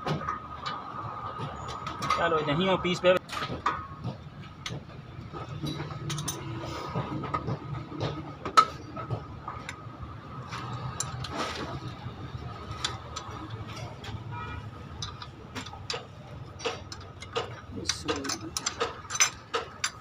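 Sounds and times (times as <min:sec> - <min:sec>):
metallic clicks of hand tools: 0:15.0 - 0:20.0.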